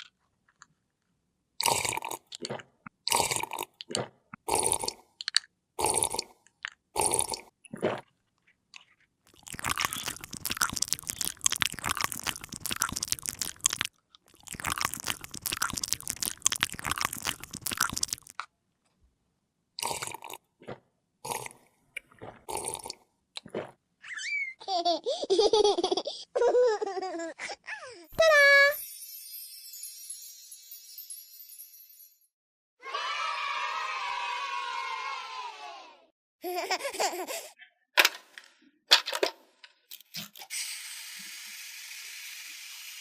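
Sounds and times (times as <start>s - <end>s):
plastic packaging crinkling: 9.3s - 18.4s.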